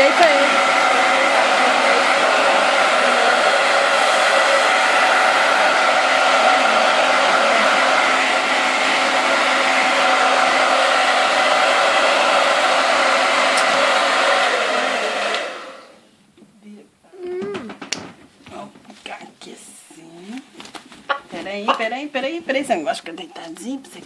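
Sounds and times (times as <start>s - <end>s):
hair dryer blowing: 0.0s - 16.0s.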